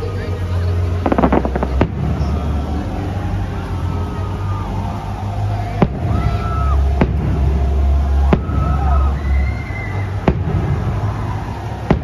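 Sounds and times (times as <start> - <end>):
deep steady rumble: 0.0 - 12.0
firework shells bursting: 1.0 - 2.3.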